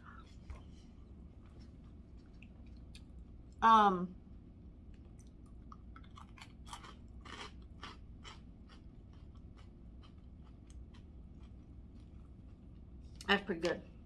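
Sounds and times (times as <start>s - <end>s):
person chewing crunchy snacks: 5.1s - 12.9s.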